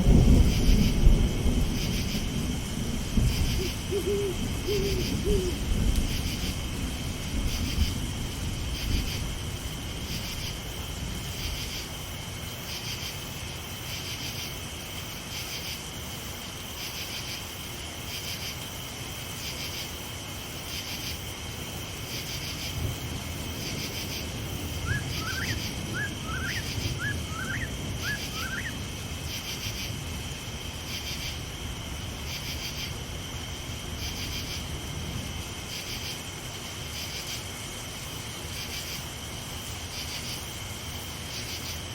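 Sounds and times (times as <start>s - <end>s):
crickets chirping: 0.0s - 41.9s
rain: 0.0s - 41.9s
bird rising calls: 3.5s - 5.7s, 24.8s - 28.8s.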